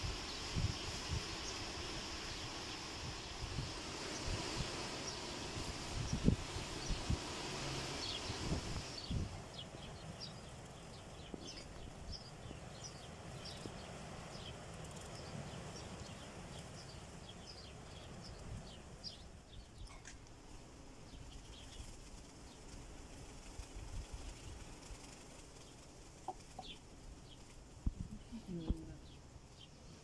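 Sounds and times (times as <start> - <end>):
small birds chirping: 0.0 - 30.0
faint low rumble: 27.2 - 29.2.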